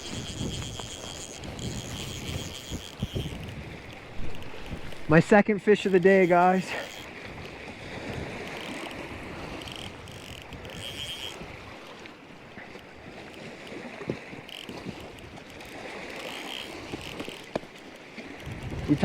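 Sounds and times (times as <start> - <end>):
faint clicks: 0.0 - 5.2, 5.8 - 19.0
high ticking: 0.0 - 11.9
small waves lapping: 0.0 - 19.0
wind rushing over microphone: 18.2 - 19.0.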